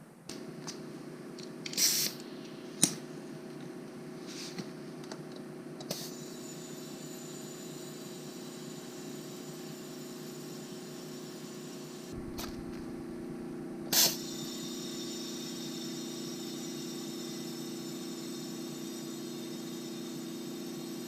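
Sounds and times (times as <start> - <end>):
steady background hum: 0.0 - 7.4, 12.0 - 15.8.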